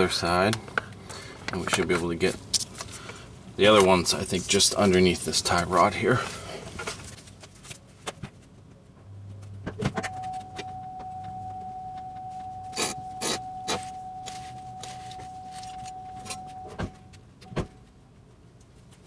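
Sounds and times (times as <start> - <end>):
steady high tone: 10.0 - 17.2.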